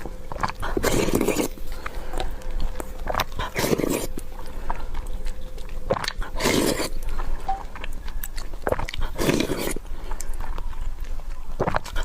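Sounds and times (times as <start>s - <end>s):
close chewing and eating: 0.0s - 12.0s
wet mouth clicks: 5.0s - 12.0s.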